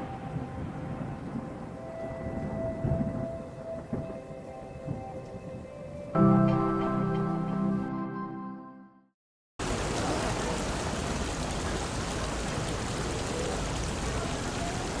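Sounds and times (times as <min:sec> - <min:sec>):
music chord: 0:00.0 - 0:09.0
flowing water: 0:09.6 - 0:15.0.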